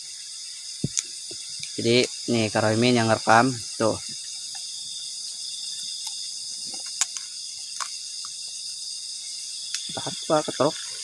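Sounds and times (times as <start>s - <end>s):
high-pitched insect chorus: 0.0s - 11.0s
faint ticks: 9.6s - 10.0s.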